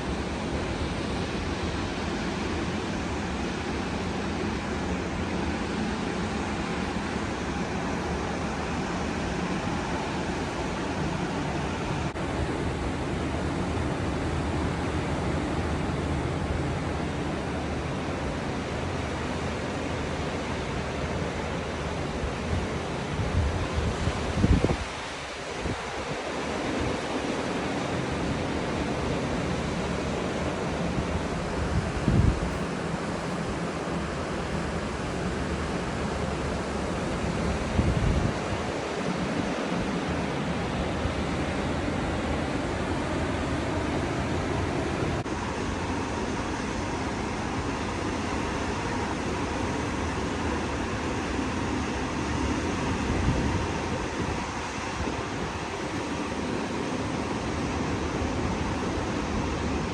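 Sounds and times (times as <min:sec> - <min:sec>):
ocean surf washing onto beach: 0:00.0 - 0:59.9
wind rumbling on microphone: 0:22.4 - 0:27.1, 0:30.4 - 0:36.4, 0:37.2 - 0:41.8, 0:52.7 - 0:56.1.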